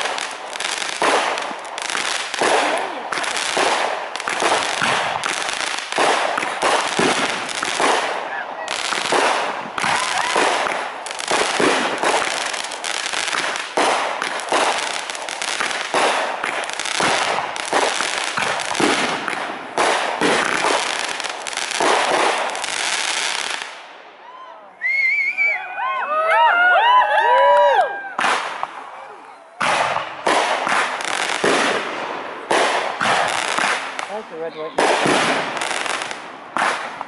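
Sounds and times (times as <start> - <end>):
fireworks whistling: 0.0 - 23.8
fireworks banging and crackling: 0.0 - 24.0, 27.3 - 37.0.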